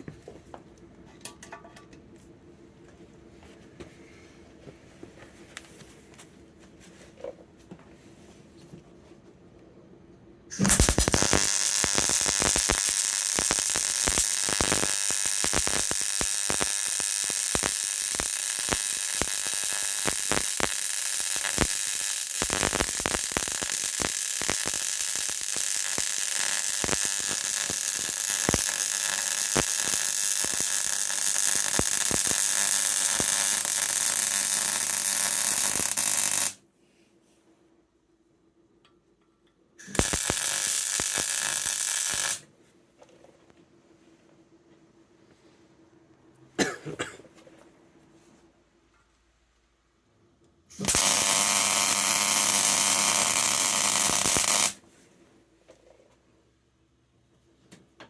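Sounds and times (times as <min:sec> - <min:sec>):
welding arc crackling buzz: 0:10.5 - 0:36.6, 0:39.8 - 0:42.5, 0:50.7 - 0:54.8.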